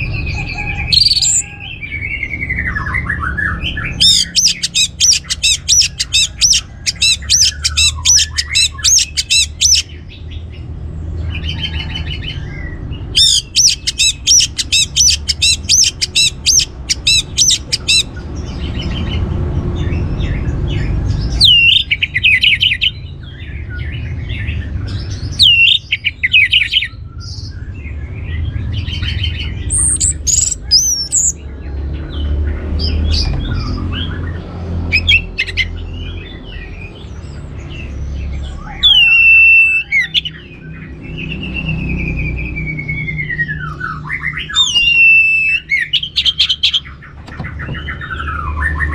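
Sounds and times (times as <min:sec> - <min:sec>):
thrush calling: 0:00.0 - 0:10.0, 0:11.4 - 0:18.2, 0:21.3 - 0:23.0, 0:25.3 - 0:27.0, 0:28.8 - 0:31.4, 0:34.8 - 0:35.9, 0:38.5 - 0:40.6, 0:41.2 - 0:48.9.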